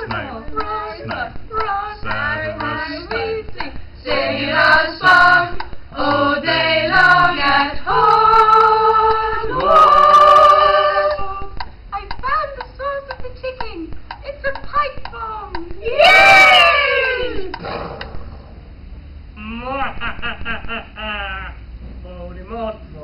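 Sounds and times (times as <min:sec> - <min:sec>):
young voices singing a cappella: 0:00.0 - 0:11.6.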